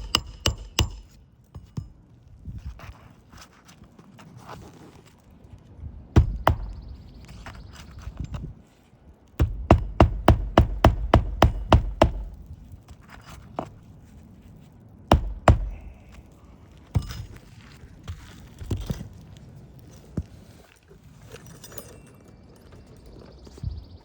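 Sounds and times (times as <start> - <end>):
hammer driving nails into shingles: 0.0 - 2.0, 6.2 - 6.9, 9.4 - 12.5, 15.1 - 16.0, 16.9 - 17.4.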